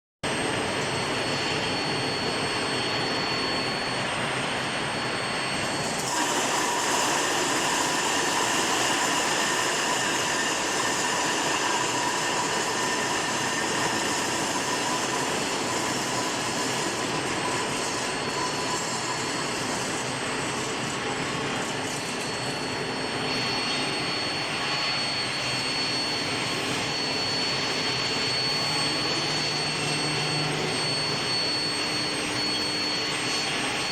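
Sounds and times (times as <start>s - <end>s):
thin high whine: 0.2s - 33.9s.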